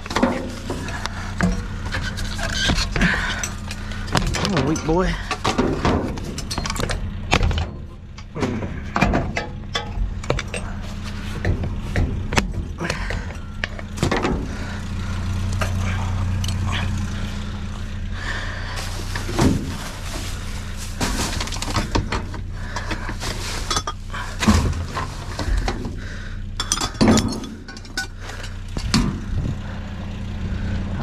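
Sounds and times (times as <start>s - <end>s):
metal and glass scrap clattering: 0.0s - 11.6s, 18.8s - 29.2s
steady low hum: 0.0s - 31.0s.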